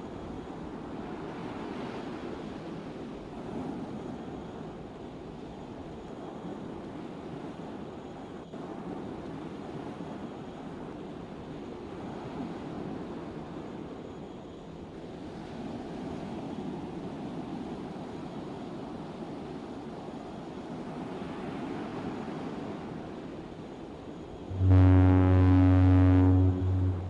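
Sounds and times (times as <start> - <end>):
ship engine rumble: 24.4 - 27.0.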